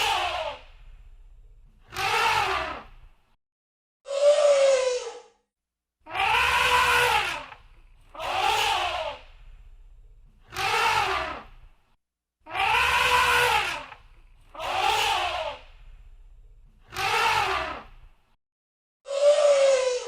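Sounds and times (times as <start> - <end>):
elephant trumpeting: 6.1 - 9.2, 12.5 - 14.0.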